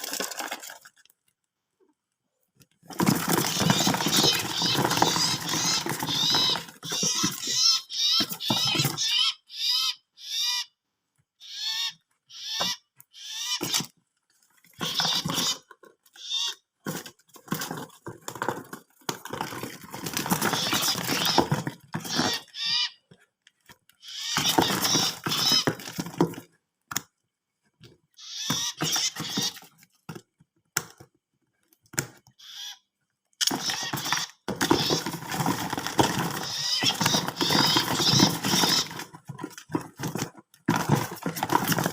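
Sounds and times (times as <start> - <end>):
rustling and scraping in box: 2.7 - 9.0, 16.8 - 22.5, 33.5 - 41.9
small birds chirping: 3.2 - 14.0, 14.7 - 16.8, 19.6 - 23.1, 23.9 - 26.0, 28.1 - 29.8, 32.3 - 40.2.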